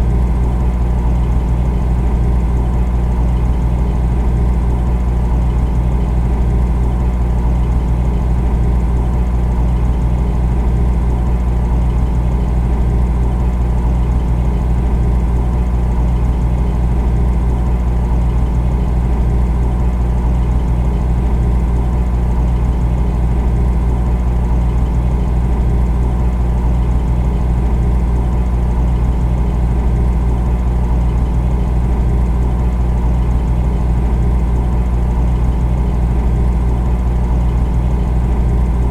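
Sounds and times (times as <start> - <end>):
refrigerator humming: 0.0 - 38.9.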